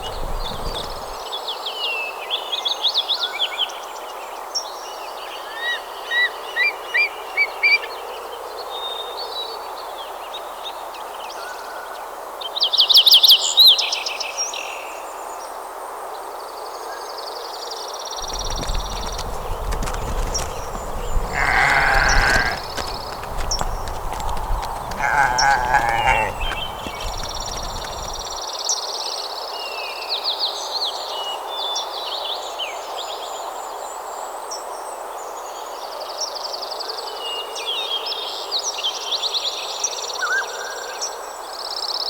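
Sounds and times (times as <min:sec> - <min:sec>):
small birds chirping: 0:00.0 - 0:01.2, 0:18.2 - 0:28.4
animal bleating call: 0:18.2 - 0:28.4.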